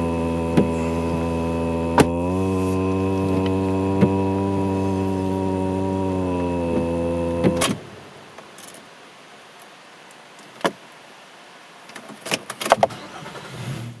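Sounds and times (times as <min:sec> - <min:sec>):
vehicle engine hum: 0:00.0 - 0:08.4.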